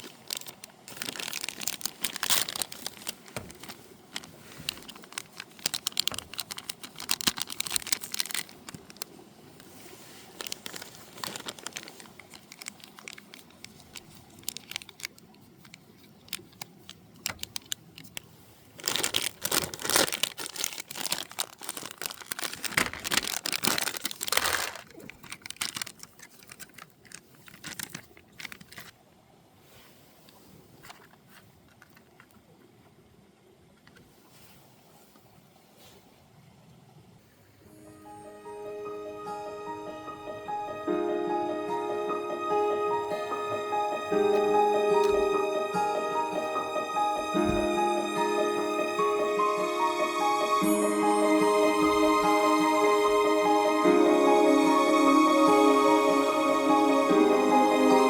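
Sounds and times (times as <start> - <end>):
crinkly material rustling: 0.0 - 29.0, 29.6 - 32.5, 42.7 - 49.9.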